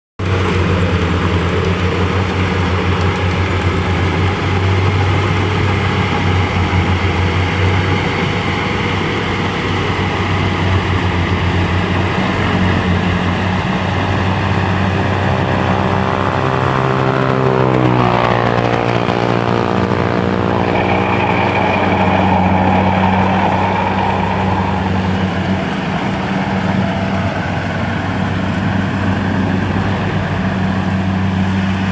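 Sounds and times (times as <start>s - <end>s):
harvester engine running: 0.2s - 31.9s
higher engine tone sweeping down: 0.2s - 31.9s.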